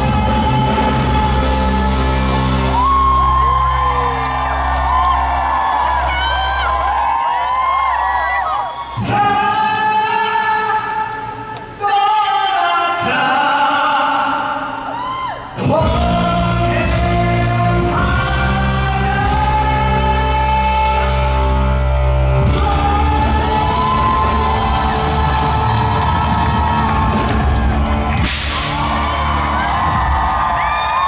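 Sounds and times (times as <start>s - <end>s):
man singing: 0.0s - 3.3s, 8.9s - 27.5s
live rock band: 0.0s - 6.9s, 15.6s - 31.0s
strong bass: 0.0s - 7.0s, 15.6s - 31.0s
audience shouting and whooping: 0.0s - 10.4s, 14.8s - 16.0s, 22.4s - 31.0s
cymbal crash: 28.2s - 29.2s.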